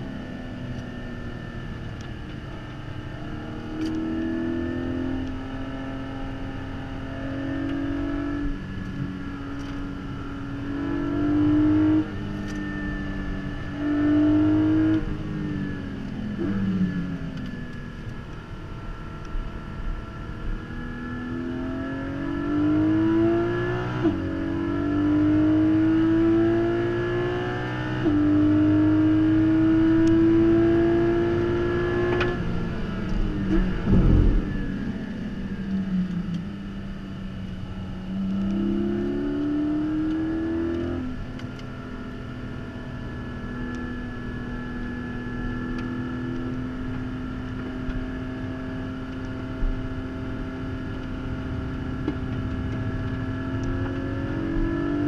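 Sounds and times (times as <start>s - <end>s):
car engine accelerating: 0.0s - 55.0s
engine throttle blips: 32.1s - 36.7s, 49.6s - 55.0s.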